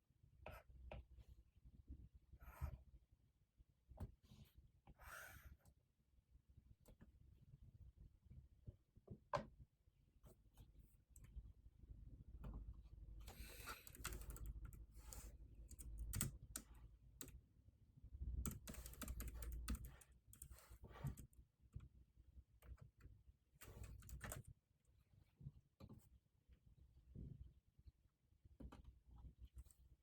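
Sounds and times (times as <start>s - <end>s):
typing on computer keyboard: 13.2s - 17.4s, 18.4s - 21.3s, 23.6s - 24.5s.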